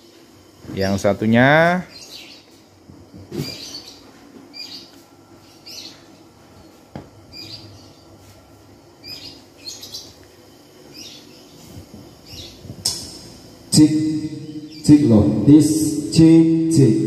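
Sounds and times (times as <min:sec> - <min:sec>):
small bird chirping: 0:01.9 - 0:02.6, 0:03.3 - 0:08.3, 0:09.0 - 0:15.2
sharp click: 0:12.8 - 0:13.3.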